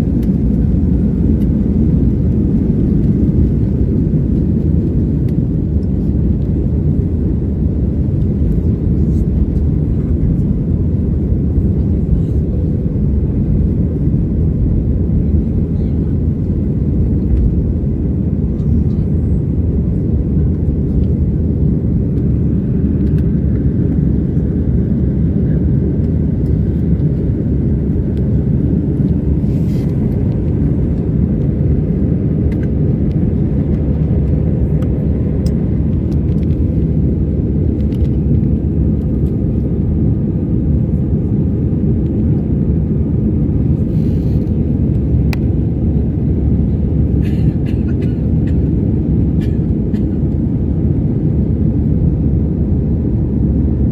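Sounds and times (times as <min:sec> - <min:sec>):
jet airliner cabin rumble: 0:00.0 - 0:53.9.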